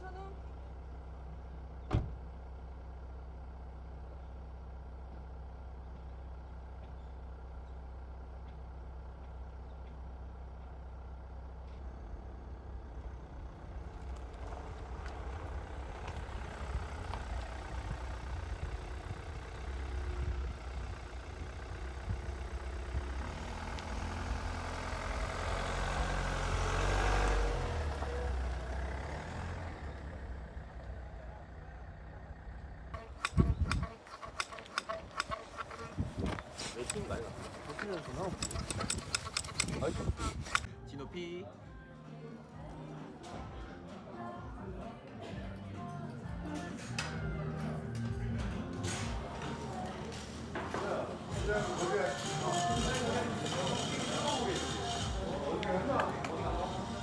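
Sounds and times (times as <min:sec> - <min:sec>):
steady low rumble: 0:11.8 - 0:24.4
motor vehicle passing: 0:12.0 - 0:40.7, 0:46.8 - 0:57.0.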